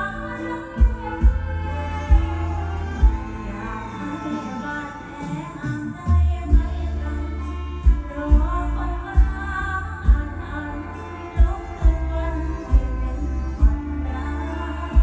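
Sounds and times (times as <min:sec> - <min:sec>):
heavy bass: 0:00.0 - 0:15.0
live band: 0:00.0 - 0:15.0
woman singing: 0:00.0 - 0:15.0
kick drum beat: 0:00.8 - 0:03.4, 0:06.5 - 0:06.8, 0:07.8 - 0:10.4, 0:11.4 - 0:12.1, 0:12.7 - 0:12.9, 0:13.6 - 0:13.9.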